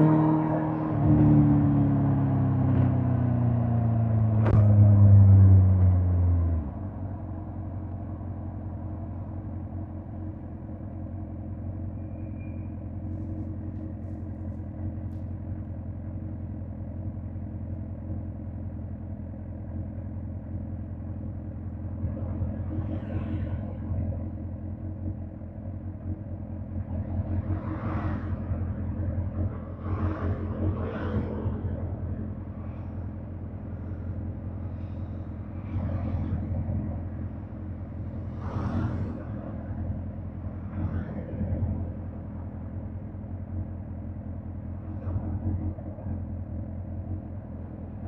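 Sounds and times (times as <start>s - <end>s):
engine revving: 0.0s - 6.9s
motorcycle engine running steadily: 6.6s - 22.6s, 24.1s - 27.0s, 42.0s - 44.9s.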